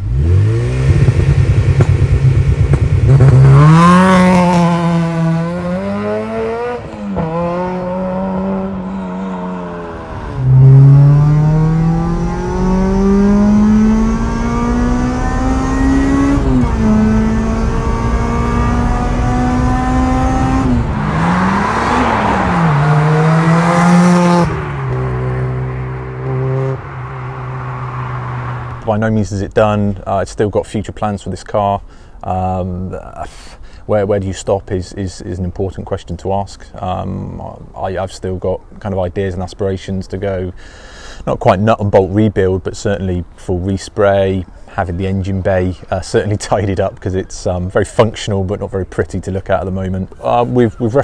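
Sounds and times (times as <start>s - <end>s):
car engine accelerating: 0.0s - 28.9s.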